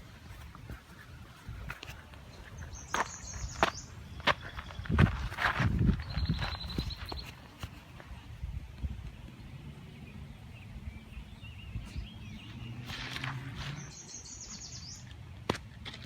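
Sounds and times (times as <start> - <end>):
bird trilling song: 0.0 - 5.3, 5.9 - 7.9, 9.2 - 15.2
small birds chirping: 0.0 - 15.3.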